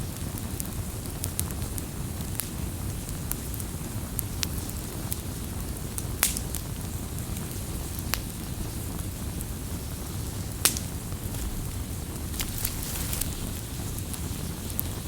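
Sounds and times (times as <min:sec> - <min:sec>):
fire crackles and pops: 0:00.1 - 0:15.0
campfire low rumble: 0:05.3 - 0:15.0.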